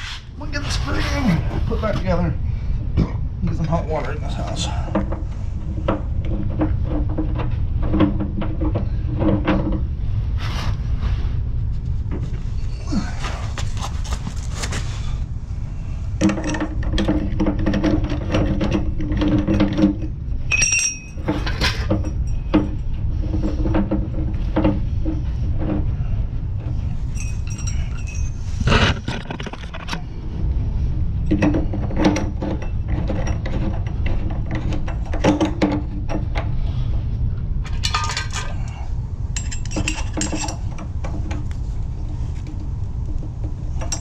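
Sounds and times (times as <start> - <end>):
metal tools clinking and scraping: 16.3 - 23.9, 26.9 - 30.0, 37.6 - 41.5, 43.8 - 44.0.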